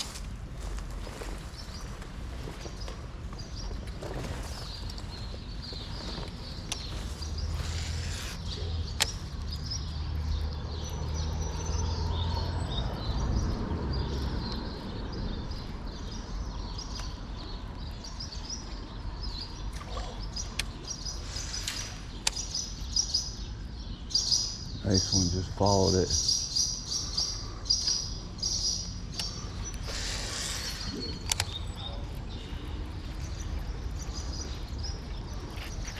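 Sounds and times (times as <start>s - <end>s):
small birds chirping: 0.0s - 35.9s
sharp clicks: 7.6s - 9.2s, 21.6s - 22.6s, 31.0s - 31.6s.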